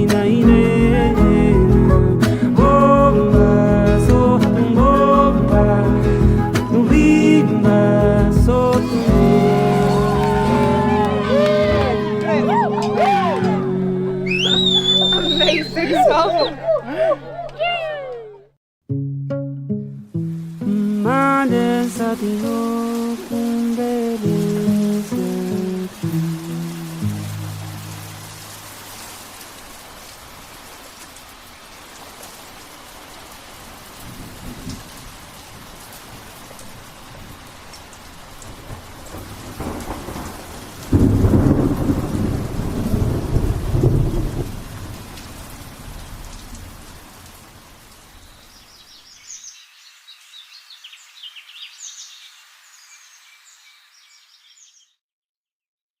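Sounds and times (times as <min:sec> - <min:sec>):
steady rain: 0:00.0 - 0:18.2, 0:20.2 - 0:54.4
high chirps: 0:14.2 - 0:16.6
thunder rumble: 0:38.4 - 0:47.1.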